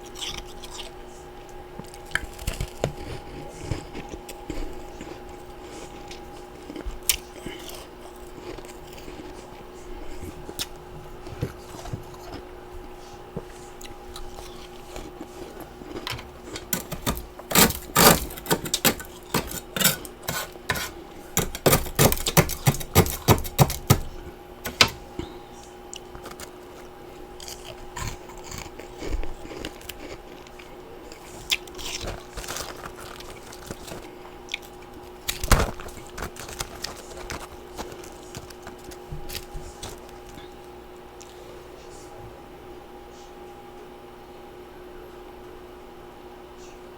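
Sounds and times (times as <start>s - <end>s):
ice crunching in mouth: 0.0s - 1.0s, 1.8s - 12.5s, 13.8s - 24.0s, 25.9s - 41.4s
faint steady hum: 0.0s - 46.9s.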